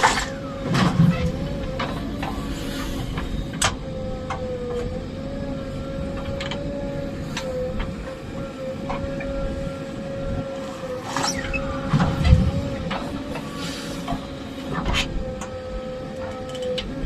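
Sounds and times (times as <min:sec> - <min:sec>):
backhoe engine rumble: 0:00.0 - 0:17.0
high whine: 0:00.0 - 0:17.0.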